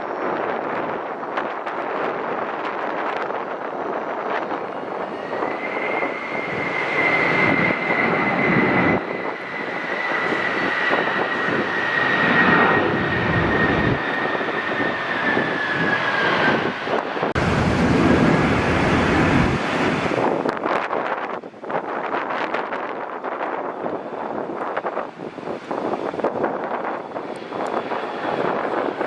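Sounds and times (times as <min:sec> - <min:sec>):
jet engines roaring past: 0:00.0 - 0:29.0
wind buffeting microphone: 0:00.0 - 0:29.0.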